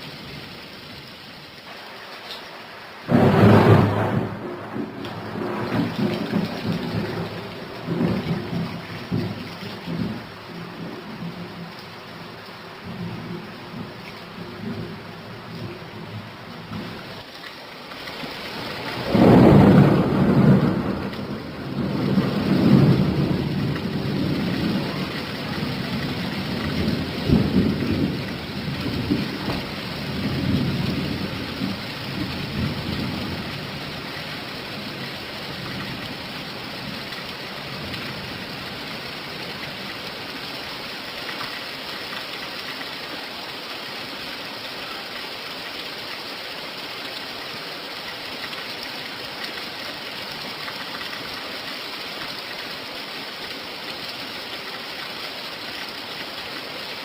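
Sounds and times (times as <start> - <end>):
steady rain: 0.0 - 57.0
thunder rumbling: 3.0 - 17.0, 18.8 - 34.0.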